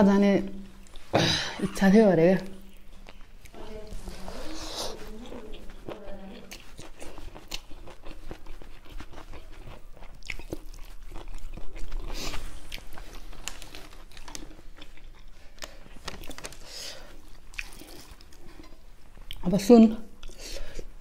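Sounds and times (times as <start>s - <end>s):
person chewing with wet mouth clicks: 2.4s - 3.6s, 4.6s - 13.0s, 17.5s - 19.5s, 20.2s - 20.9s.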